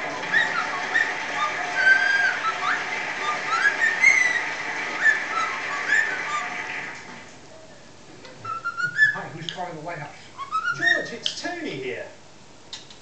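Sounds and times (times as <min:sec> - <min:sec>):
cockatiel whistling: 0:00.0 - 0:06.9, 0:08.4 - 0:09.3, 0:10.4 - 0:11.3
steady background hiss: 0:00.0 - 0:13.0.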